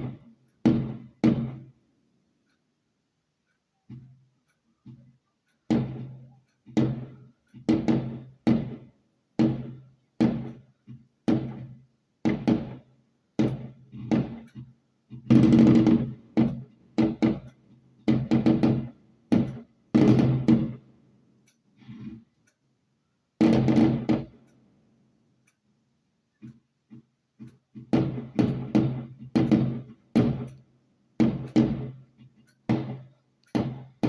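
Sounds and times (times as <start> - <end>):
firework bangs: 31.2 - 32.0, 32.7 - 33.0, 33.6 - 33.9.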